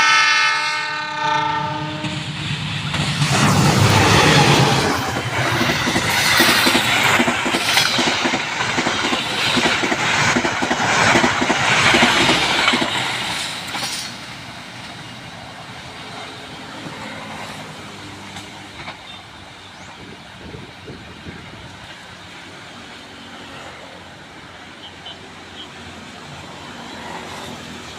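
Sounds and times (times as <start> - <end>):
train rumble: 0.0 - 27.9
train wheels clattering over points: 2.6 - 14.3.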